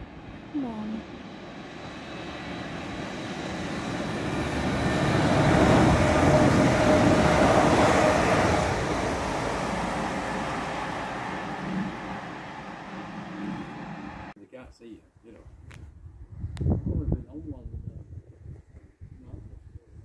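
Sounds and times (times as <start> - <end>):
steady whine: 0.0 - 14.4
train wheels rumbling on rail: 1.4 - 14.3.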